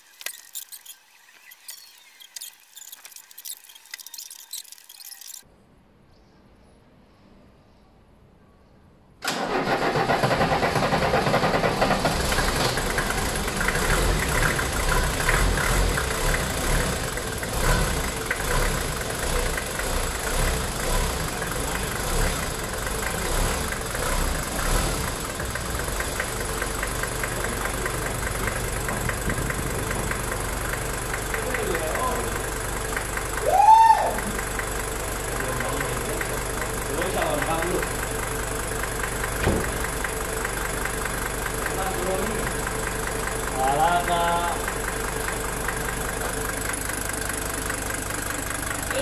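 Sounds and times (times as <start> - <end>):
diesel car engine starting and idling: 9.2 - 49.0.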